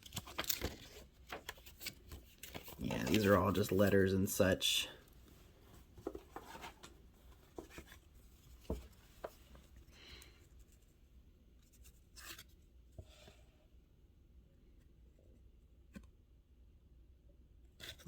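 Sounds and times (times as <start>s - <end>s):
paper rustling: 0.0s - 4.4s, 5.6s - 9.7s.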